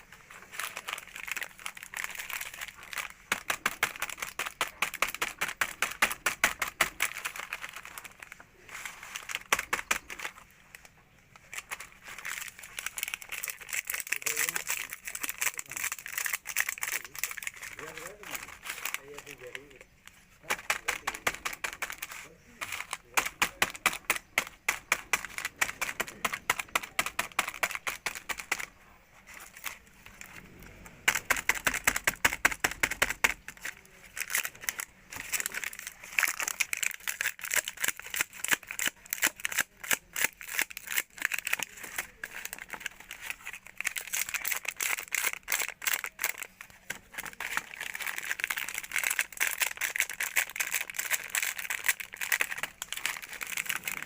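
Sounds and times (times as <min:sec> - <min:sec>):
rapid clicking and rattling: 0:31.0 - 0:39.6.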